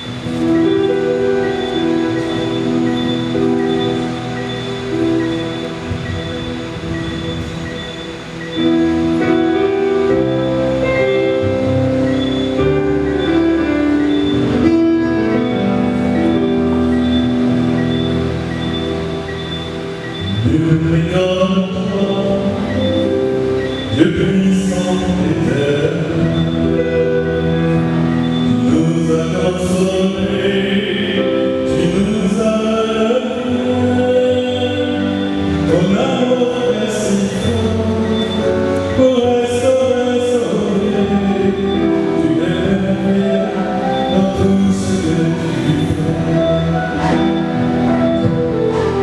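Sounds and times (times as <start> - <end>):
musical accompaniment: 0.0 - 49.0
choir singing a hymn: 20.0 - 49.0.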